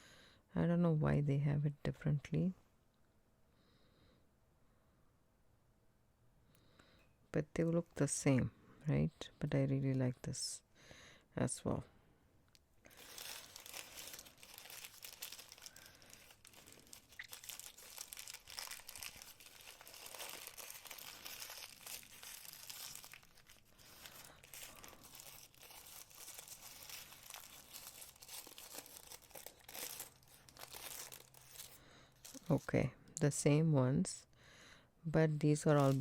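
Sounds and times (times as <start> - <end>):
packing material crinkling: 12.8 - 32.8, 35.5 - 36.0.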